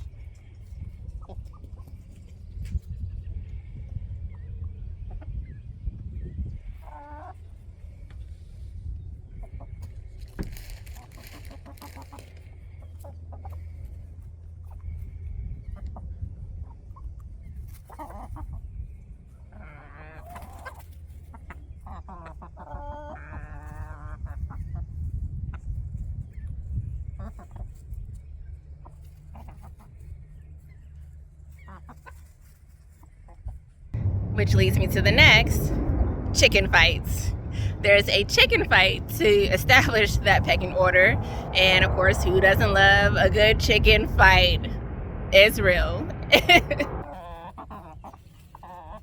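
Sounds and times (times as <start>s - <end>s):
steady low rumble: 33.9s - 49.0s.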